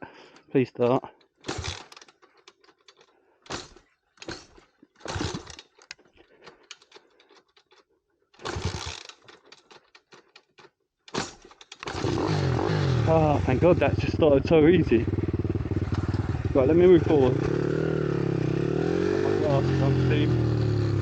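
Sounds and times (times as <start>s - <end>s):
small clicks: 1.2s - 11.9s
motorbike start attempts thunking: 1.3s - 7.7s, 8.4s - 13.9s, 15.1s - 21.0s.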